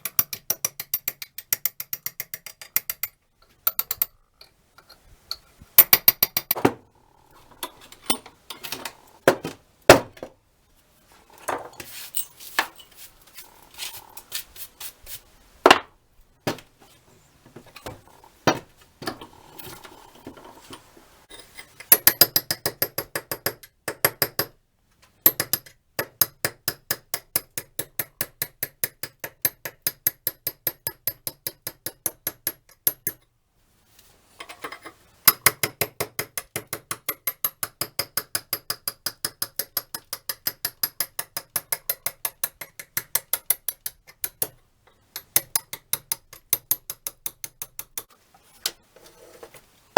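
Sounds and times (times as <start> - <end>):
metal tapping on wrench: 0.0 - 6.6, 21.8 - 24.6, 25.2 - 33.2, 35.2 - 48.1.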